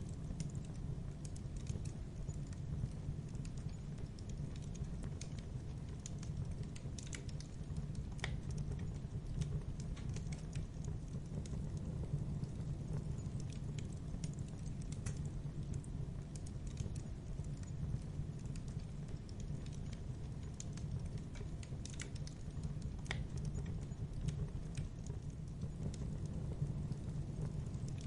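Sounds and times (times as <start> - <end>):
fire crackling in a fireplace: 0.0 - 28.0
low rumble of flames: 0.0 - 28.0.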